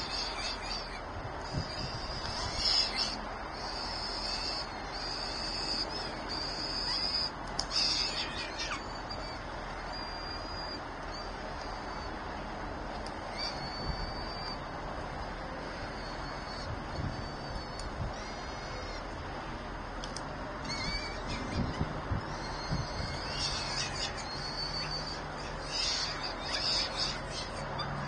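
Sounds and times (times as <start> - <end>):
high-pitched bird calls: 0.0 - 12.2, 13.2 - 19.2, 20.5 - 28.0.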